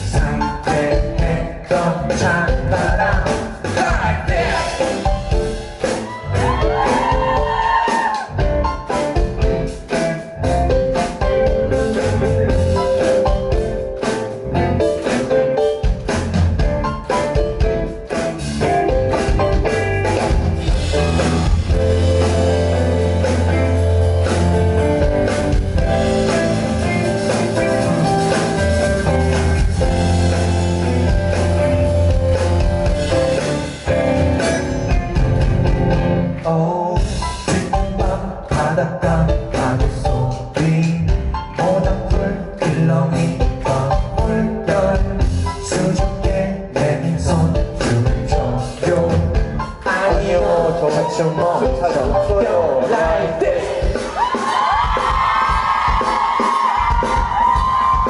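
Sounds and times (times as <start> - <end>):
person singing: 0.0 - 8.4, 36.3 - 55.1
pop-rock band playing: 0.0 - 58.0.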